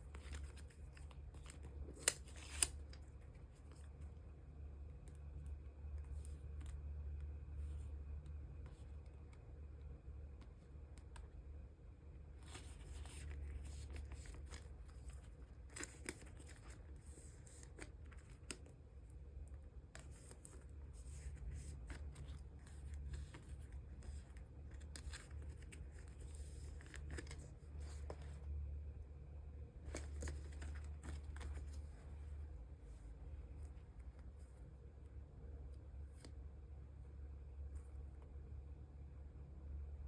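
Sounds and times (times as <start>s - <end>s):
plastic sleeves rustling: 0.0s - 4.2s, 12.2s - 28.7s, 29.7s - 34.5s
steady low hum: 0.0s - 40.0s
light clicks of cards: 0.1s - 4.2s.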